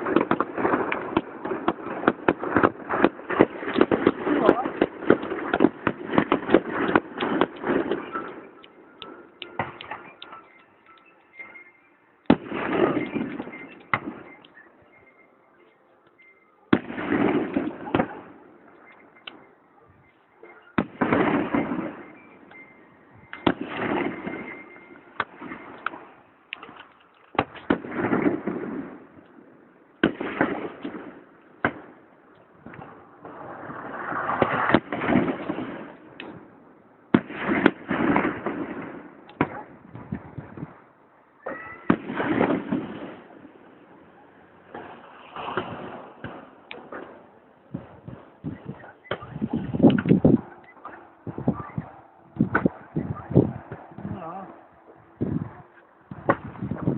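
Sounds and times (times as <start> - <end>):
firework crackling: 0.0 - 10.4, 20.8 - 22.5, 23.1 - 29.4, 30.0 - 32.0, 32.6 - 43.6, 44.7 - 51.6
firework bangs: 0.0 - 10.5, 12.3 - 14.5, 16.7 - 19.5, 20.6 - 56.9
rising firework whistle: 9.8 - 15.2.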